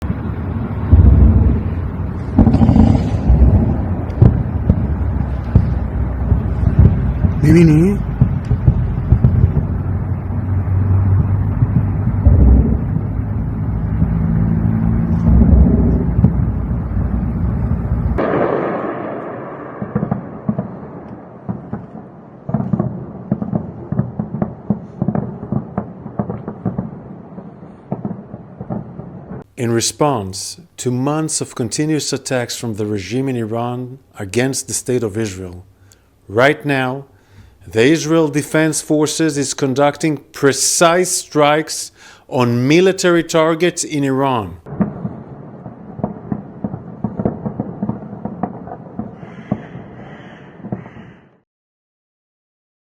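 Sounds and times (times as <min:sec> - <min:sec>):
distant explosion booms: 0:00.0 - 0:29.4, 0:44.6 - 0:51.3
loud deep rumble: 0:00.0 - 0:29.4
rapid gunfire cracks and pops: 0:18.2 - 0:27.0, 0:46.0 - 0:49.8.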